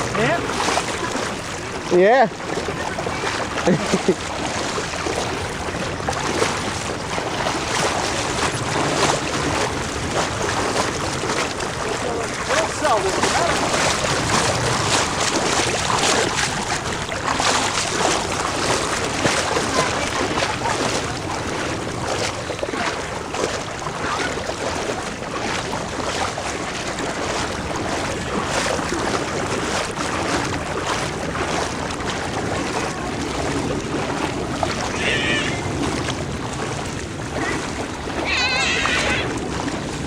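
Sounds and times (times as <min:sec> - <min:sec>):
wind noise on microphone: 0:00.0 - 0:12.5, 0:13.2 - 0:40.0
floodwater splashing: 0:00.0 - 0:40.0.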